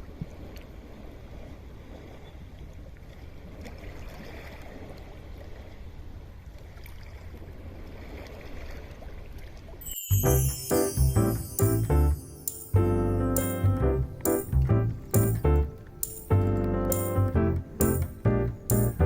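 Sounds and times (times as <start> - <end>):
piano music: 9.8 - 19.0.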